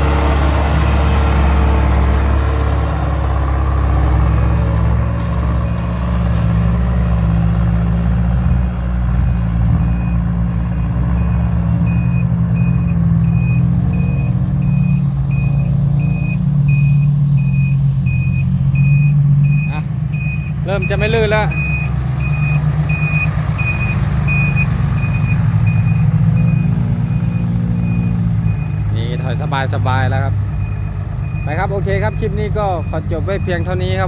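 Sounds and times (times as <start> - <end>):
diesel truck engine running: 0.0 - 34.0
high-pitched reversing alarm beeping: 9.8 - 29.3.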